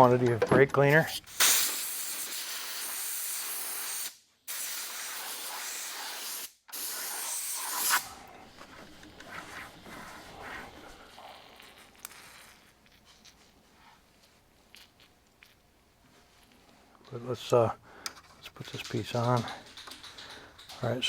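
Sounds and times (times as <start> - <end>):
aerosol can spraying: 1.3 - 8.1
faint clicks and rubbing: 18.0 - 21.0.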